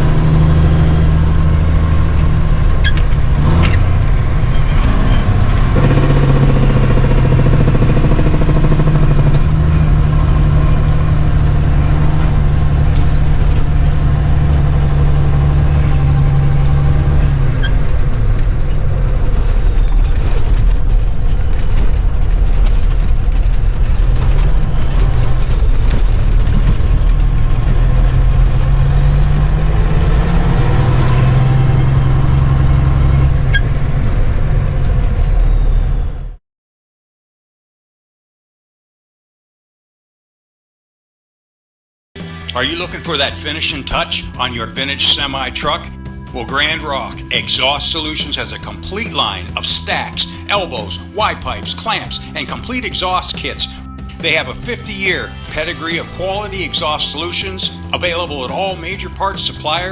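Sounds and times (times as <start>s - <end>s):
diesel truck engine running: 0.0s - 36.4s, 42.2s - 59.9s
high whine: 0.0s - 36.4s, 42.2s - 59.9s.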